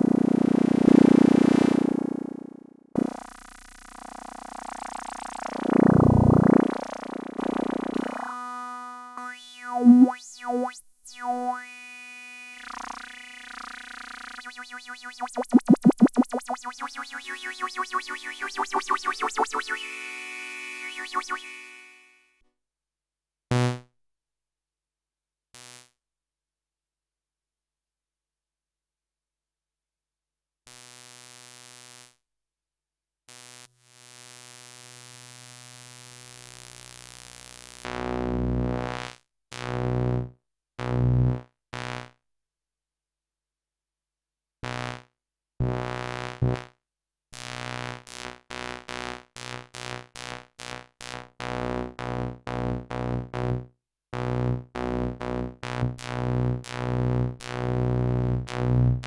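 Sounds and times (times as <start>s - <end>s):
distorted analogue synthesizer notes: 4.6s - 11.6s, 14.2s - 21.7s.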